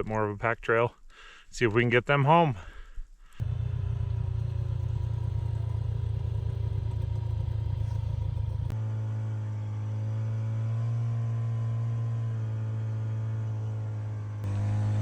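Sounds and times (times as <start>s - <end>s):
snowmobile engine running: 3.4s - 8.8s, 14.4s - 15.0s.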